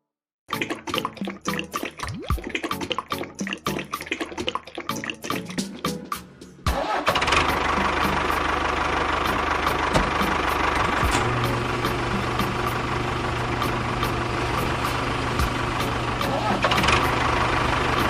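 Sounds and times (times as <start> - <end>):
steady hum: 9.8 - 16.2.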